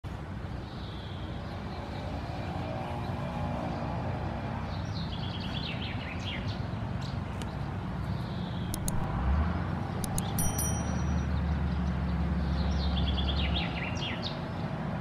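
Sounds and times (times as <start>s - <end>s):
sharp clicks: 8.7s - 9.1s, 10.0s - 11.2s
small bird chirping: 10.0s - 11.3s.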